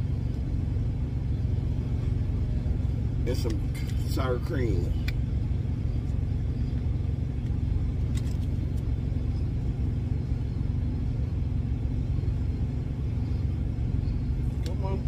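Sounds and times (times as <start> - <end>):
truck diesel engine idling: 0.0 - 15.0.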